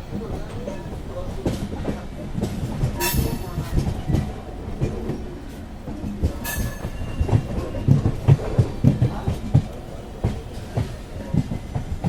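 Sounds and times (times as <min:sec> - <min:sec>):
high wheel squeals: 0:03.0 - 0:03.6, 0:06.4 - 0:07.6
train wheels knocking over rail joints: 0:05.8 - 0:12.0.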